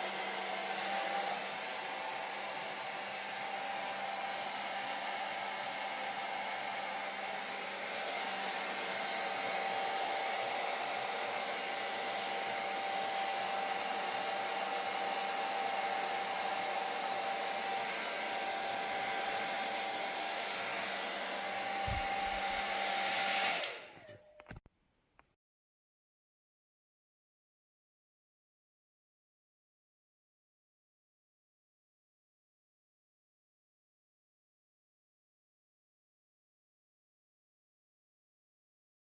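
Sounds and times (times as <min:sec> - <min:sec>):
hair dryer blowing: 0:00.0 - 0:24.5.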